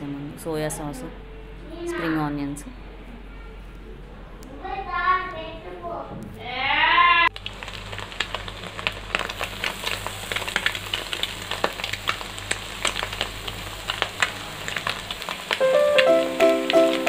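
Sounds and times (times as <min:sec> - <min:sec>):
rice sizzling in hot oil: 0:07.3 - 0:17.0.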